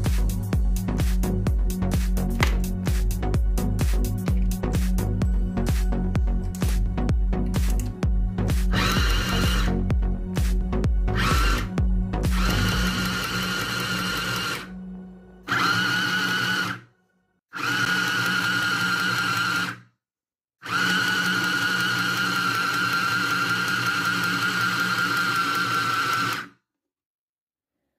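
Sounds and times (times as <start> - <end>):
sewing machine motor whining: 8.7 - 9.8, 11.1 - 11.7, 12.3 - 14.7, 15.4 - 16.9, 17.6 - 19.8, 20.6 - 26.6.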